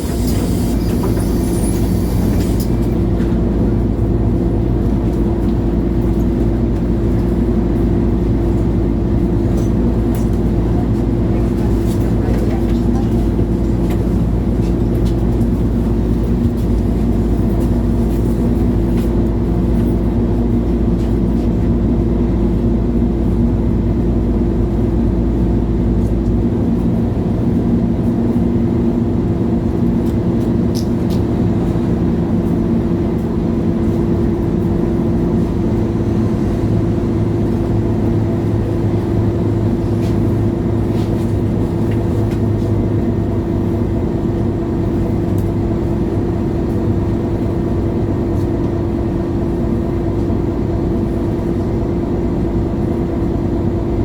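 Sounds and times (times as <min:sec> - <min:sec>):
bus engine droning: 0:00.0 - 0:54.0.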